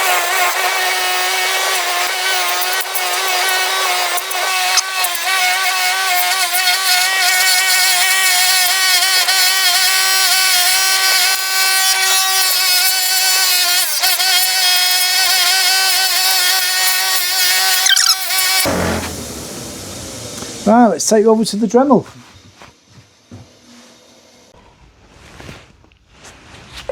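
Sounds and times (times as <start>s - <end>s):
power tool high-pitched whine: 0.0s - 21.4s.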